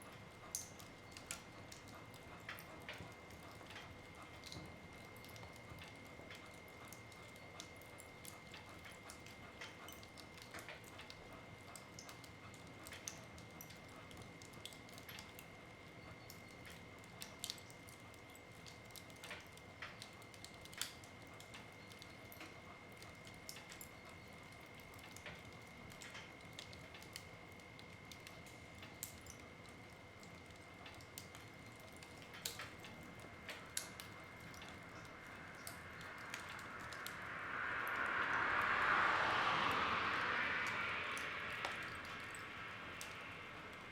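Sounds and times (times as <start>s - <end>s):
wood fire crackling: 0.0s - 43.9s
faint high whine: 33.2s - 43.9s.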